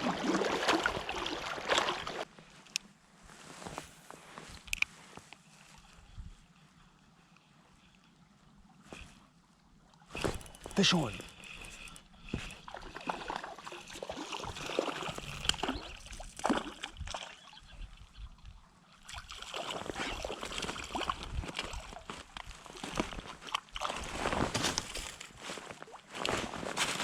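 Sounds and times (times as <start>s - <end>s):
water splashing in a creek: 0.0s - 2.3s, 9.8s - 27.0s.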